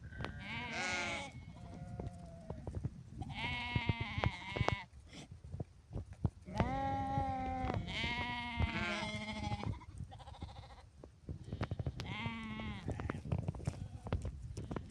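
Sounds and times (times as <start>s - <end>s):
sheep bleating: 0.2s - 4.9s, 6.5s - 10.8s, 12.0s - 14.1s.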